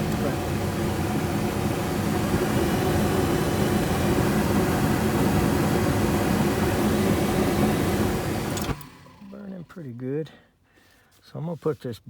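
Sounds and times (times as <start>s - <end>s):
gas furnace burners rushing hum: 0.0s - 9.3s.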